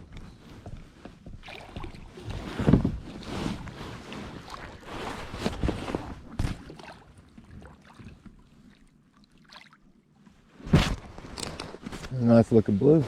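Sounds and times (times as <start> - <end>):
water splashing: 1.4 - 2.6, 4.0 - 10.1.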